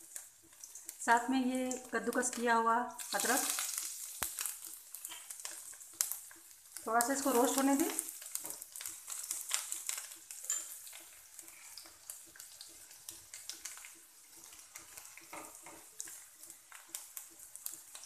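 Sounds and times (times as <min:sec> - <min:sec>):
spatula scraping and tapping pan: 0:00.0 - 0:01.0, 0:01.7 - 0:18.0
garlic sizzling in oil: 0:00.0 - 0:18.0.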